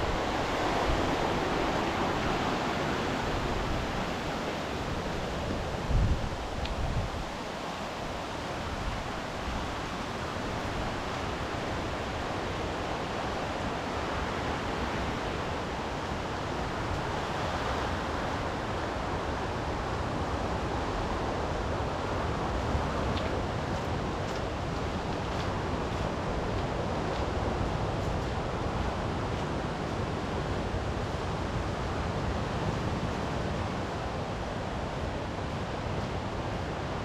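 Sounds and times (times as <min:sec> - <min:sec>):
wind buffeting microphone: 0:00.0 - 0:13.1
sea surf rushing: 0:00.0 - 0:23.0.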